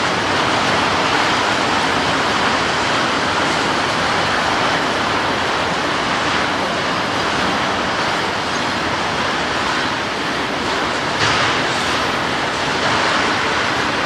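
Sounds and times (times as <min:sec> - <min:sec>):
freight train wheels on rail: 0:10.2 - 0:14.0.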